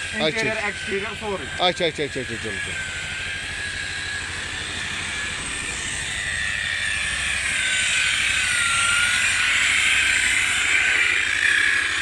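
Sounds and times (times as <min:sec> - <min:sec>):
electric polisher whining: 0:00.0 - 0:12.0.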